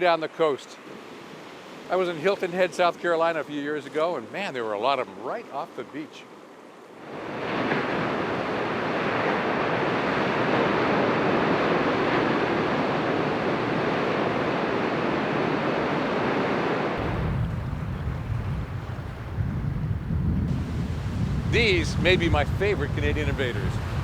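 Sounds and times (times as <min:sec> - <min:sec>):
ocean surf washing on shore: 0:07.0 - 0:24.0
low rumble: 0:17.0 - 0:24.0.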